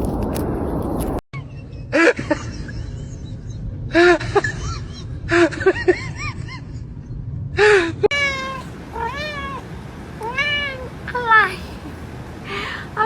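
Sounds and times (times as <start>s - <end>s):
cat meowing: 8.1s - 12.8s.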